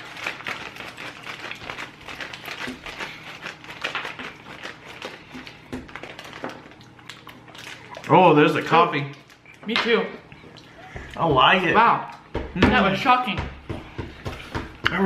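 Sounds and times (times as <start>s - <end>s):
plastic wrapper crinkling: 0.0s - 10.4s.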